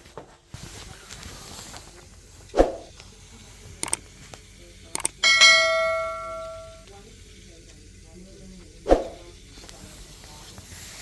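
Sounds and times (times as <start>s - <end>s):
quick clicks: 3.8s - 4.0s, 4.9s - 5.2s
ringing ding: 5.2s - 6.8s.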